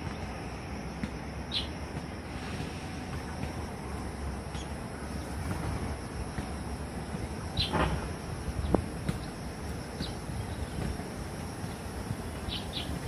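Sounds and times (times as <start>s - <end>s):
low wind rumble: 0.0s - 13.0s
birds chirping: 1.5s - 1.8s, 4.4s - 5.5s, 7.0s - 13.0s.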